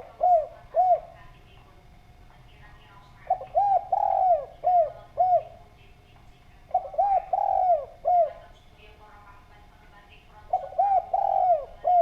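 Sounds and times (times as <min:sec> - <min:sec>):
dove cooing: 0:00.0 - 0:01.7, 0:02.8 - 0:05.9, 0:06.5 - 0:08.6, 0:10.3 - 0:12.0.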